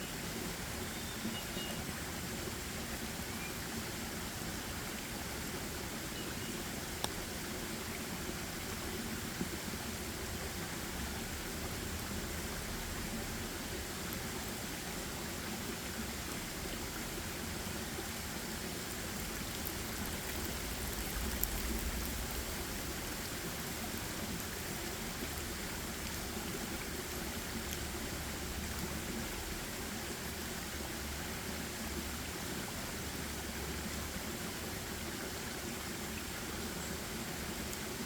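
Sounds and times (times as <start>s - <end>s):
forest rushing noise: 19.2s - 25.2s
small ticks: 19.4s - 22.6s
faint low rumble: 19.9s - 24.0s.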